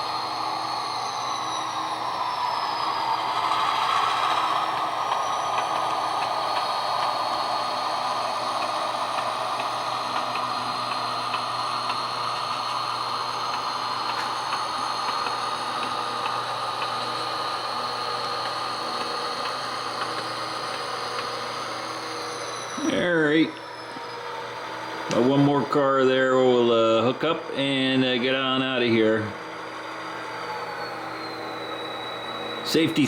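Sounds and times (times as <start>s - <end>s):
model locomotive engine sound: 0.0s - 33.0s
light regular ticking: 4.3s - 21.4s.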